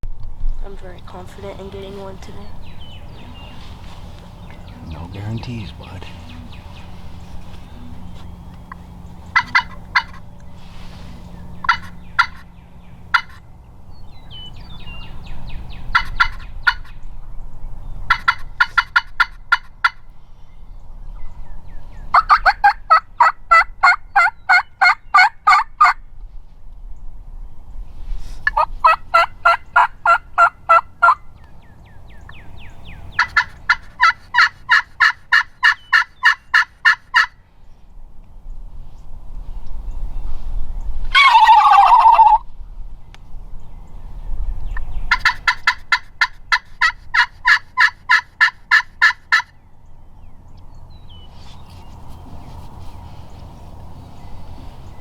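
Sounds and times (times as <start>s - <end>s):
turkey calling: 2.1s - 12.5s, 13.1s - 13.4s, 15.8s - 16.9s, 18.1s - 20.0s, 22.1s - 26.0s, 28.4s - 31.3s, 33.1s - 37.4s, 41.1s - 42.4s, 45.1s - 49.5s.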